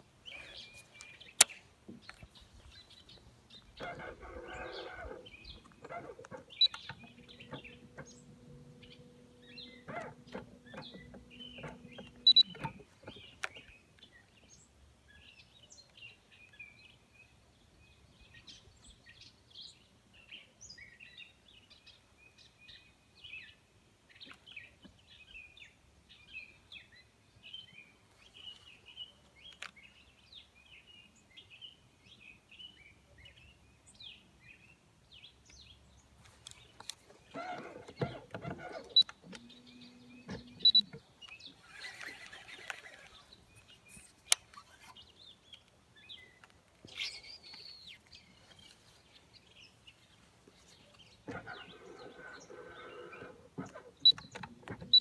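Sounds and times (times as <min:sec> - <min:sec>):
birds chirping: 0:00.0 - 0:16.1, 0:33.9 - 0:55.0
sharp clicks: 0:00.3 - 0:13.6, 0:36.2 - 0:45.0.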